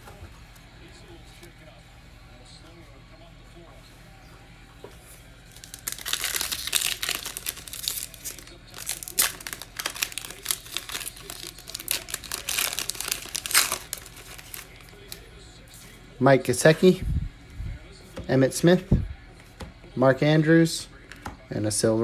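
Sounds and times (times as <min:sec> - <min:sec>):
wrapper tearing and crinkling: 0:05.5 - 0:15.0.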